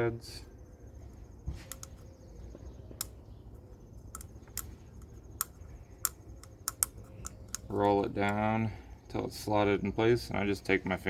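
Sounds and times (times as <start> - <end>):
plastic cap clicks and ticks: 4.2 - 8.4.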